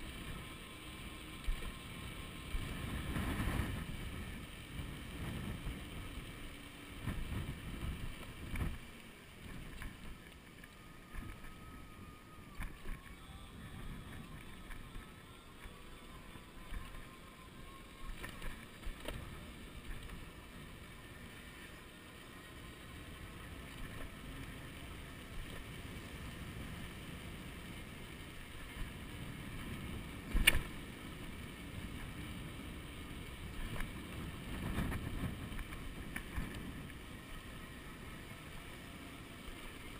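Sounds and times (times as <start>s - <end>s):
bicycle tyre noise: 0.0s - 39.9s
wind buffeting microphone: 1.3s - 10.2s, 11.0s - 21.4s, 25.4s - 38.0s.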